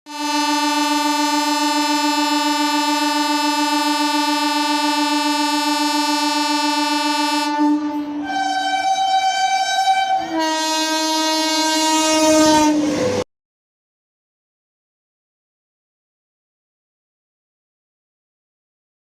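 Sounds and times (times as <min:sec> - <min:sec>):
train horn long note: 0:00.1 - 0:13.2.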